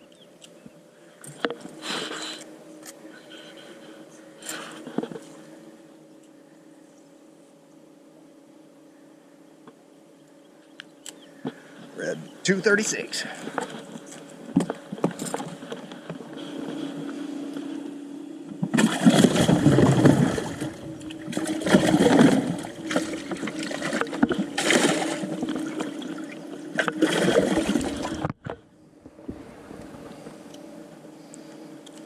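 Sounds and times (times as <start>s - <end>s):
boat motor hum: 0.0s - 32.0s
water sloshing and gurgling: 13.3s - 17.8s, 18.4s - 30.6s.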